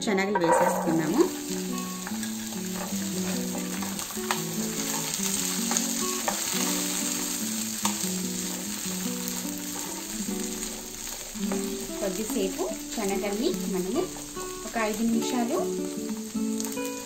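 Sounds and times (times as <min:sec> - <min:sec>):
chickpeas sizzling in hot oil: 0:00.0 - 0:17.0
spoon clinking against pan: 0:00.4 - 0:04.4.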